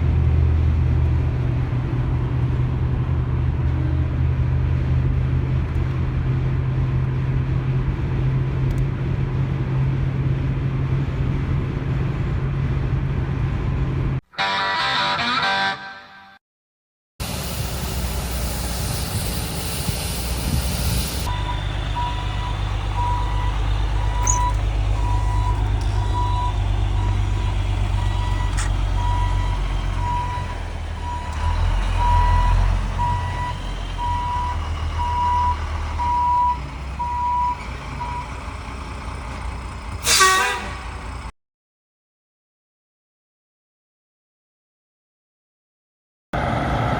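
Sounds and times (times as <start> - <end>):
truck engine rumbling: 0.0 - 15.9, 17.2 - 41.3, 46.4 - 46.9
reversing alarm beeping: 21.1 - 38.4
air brake hiss: 40.0 - 40.8.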